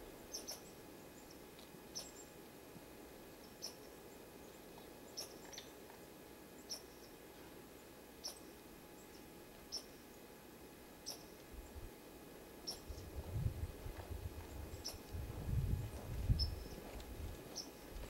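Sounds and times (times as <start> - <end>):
small bird calling: 0.3 - 2.3, 3.4 - 5.8, 6.6 - 7.2, 8.2 - 10.2, 11.0 - 11.9, 12.6 - 13.1, 14.5 - 15.2, 16.3 - 16.8, 17.5 - 17.9.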